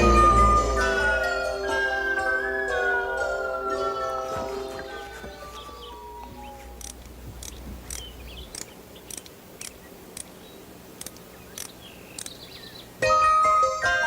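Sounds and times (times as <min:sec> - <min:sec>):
tinkling chime-like melody: 0:00.0 - 0:06.2
small bird chirping: 0:03.0 - 0:13.0.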